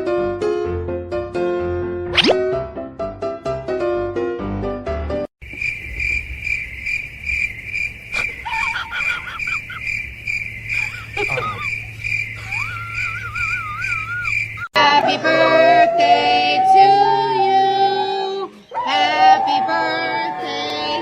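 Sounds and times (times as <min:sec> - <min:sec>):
insect-like chirping: 0:05.4 - 0:14.7
warbling whistle-like glides: 0:12.4 - 0:14.7, 0:15.3 - 0:18.3.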